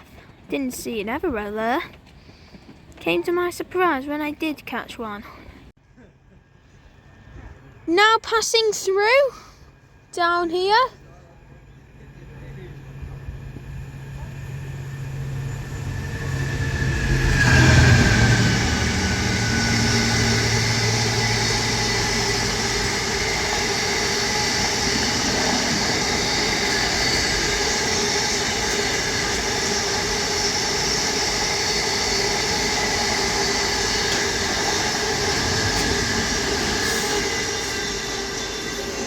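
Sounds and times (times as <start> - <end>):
train wagons rolling past: 0.0 - 5.1, 6.0 - 39.0
locomotive engine drone: 11.1 - 39.0
wheels whining: 11.7 - 39.0.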